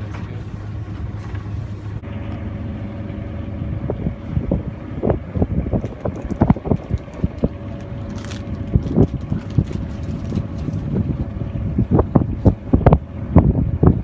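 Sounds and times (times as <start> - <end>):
wind buffeting microphone: 3.1 - 14.0.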